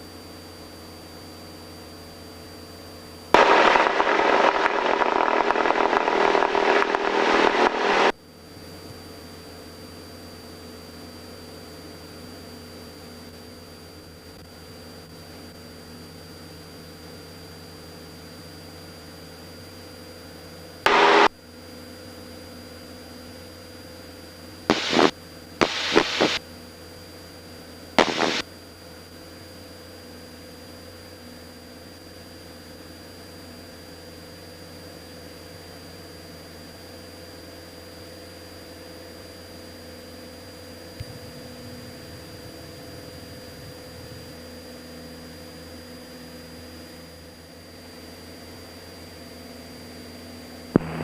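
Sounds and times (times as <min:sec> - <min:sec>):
faint hum: 0:00.0 - 0:09.6, 0:19.7 - 0:30.0, 0:48.6 - 0:51.0
crackling radio static: 0:03.4 - 0:08.2, 0:20.9 - 0:21.4, 0:24.7 - 0:26.4, 0:28.0 - 0:28.4, 0:50.8 - 0:51.0
short noise bursts: 0:03.4 - 0:08.2, 0:20.9 - 0:21.3, 0:24.7 - 0:26.4, 0:28.0 - 0:28.4, 0:50.8 - 0:51.0.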